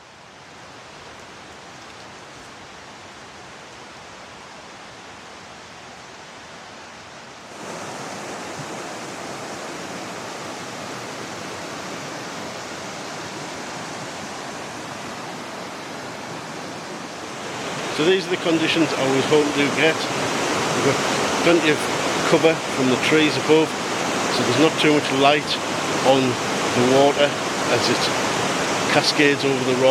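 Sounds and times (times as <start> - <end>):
river rushing over boulders: 0.0 - 29.9.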